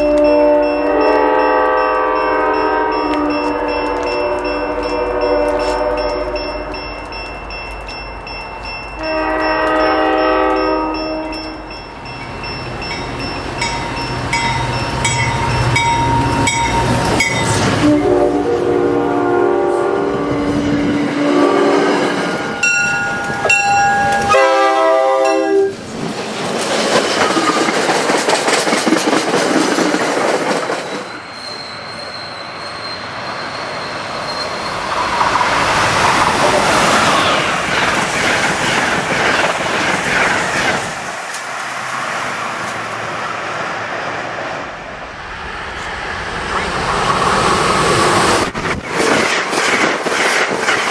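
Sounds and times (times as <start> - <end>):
locomotive air horn blasts: 0.0 - 6.5, 9.0 - 11.5, 17.7 - 22.0, 24.2 - 25.8
bell ringing: 0.0 - 17.6, 22.4 - 25.6
train wheels rushing on rail: 0.0 - 50.9
high wheel squeal: 31.0 - 37.6.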